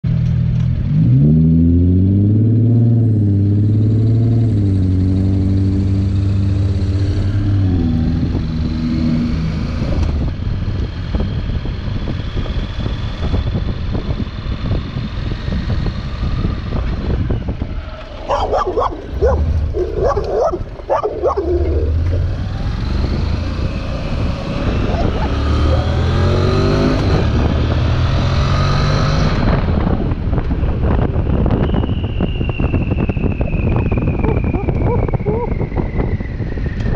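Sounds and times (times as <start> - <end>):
motorcycle engine accelerating: 0.2 - 31.9, 33.6 - 36.9
wind on microphone: 5.2 - 36.9
dog barking: 18.3 - 21.9.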